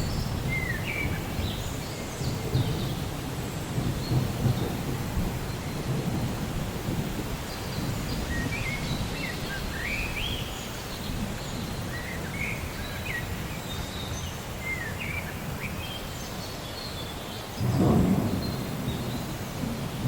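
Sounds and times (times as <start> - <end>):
low rainforest ambience: 0.0 - 20.0
birds chirping and whistling: 7.7 - 10.7.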